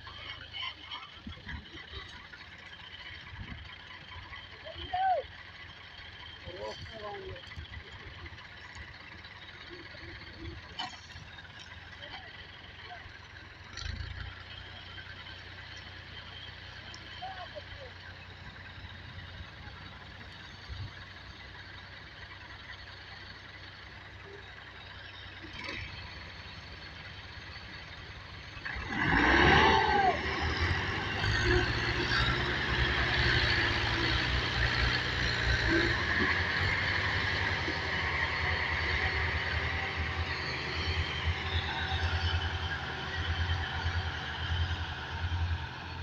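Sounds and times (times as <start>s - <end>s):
tractor engine revving: 0.0s - 46.0s
rising squeal: 28.8s - 46.0s.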